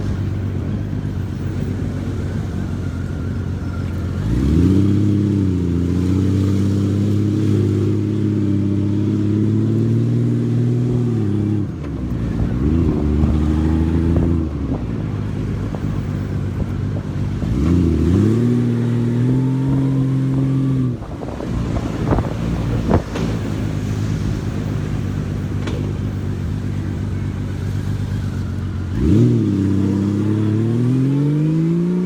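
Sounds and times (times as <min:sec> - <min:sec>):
motorcycle engine revving: 0:00.0 - 0:32.0
wind on microphone: 0:10.8 - 0:26.0.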